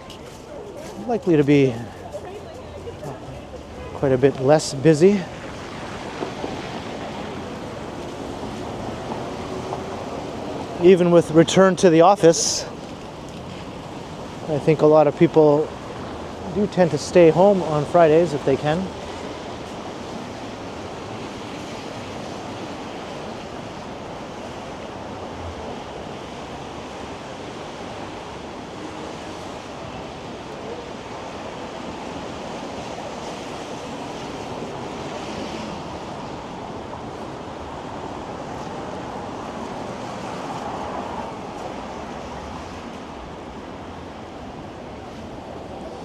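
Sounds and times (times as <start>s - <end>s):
city street traffic: 0.0s - 21.2s
wind: 0.0s - 46.0s.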